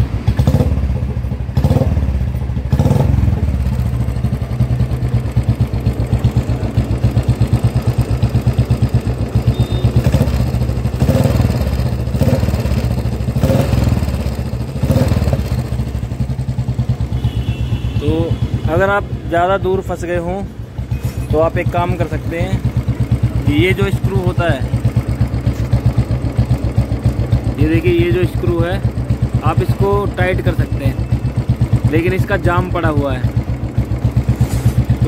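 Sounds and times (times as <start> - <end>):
motorcycle engine idling: 0.0 - 35.0.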